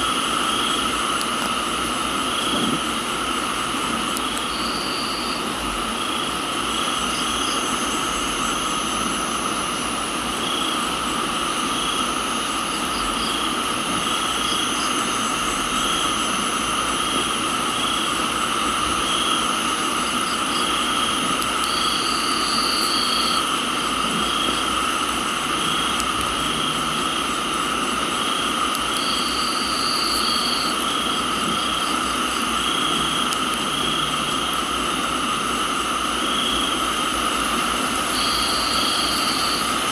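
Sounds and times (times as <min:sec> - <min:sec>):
crickets and insects chorus: 0:00.0 - 0:39.9
pulsing insect call: 0:00.0 - 0:39.9
rain hiss: 0:00.0 - 0:39.9
high insect buzz: 0:19.0 - 0:37.0, 0:38.0 - 0:39.8.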